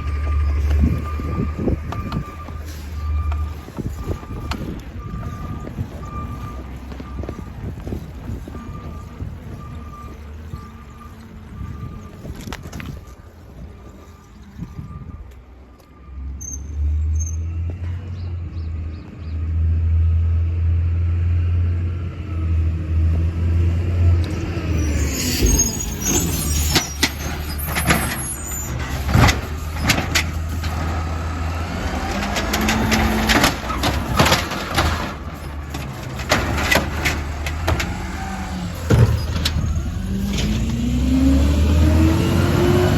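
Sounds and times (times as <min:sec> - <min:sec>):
truck engine running: 0:00.0 - 0:12.4, 0:22.7 - 0:42.9
high squeals: 0:24.0 - 0:40.3
sharp knocks and clatter: 0:26.7 - 0:31.2, 0:31.9 - 0:38.2.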